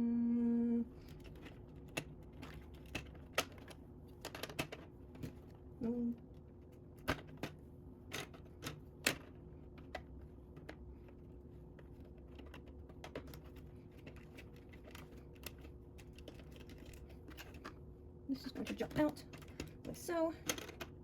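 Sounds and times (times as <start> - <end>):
plastic bricks clicking: 18.6 - 21.0.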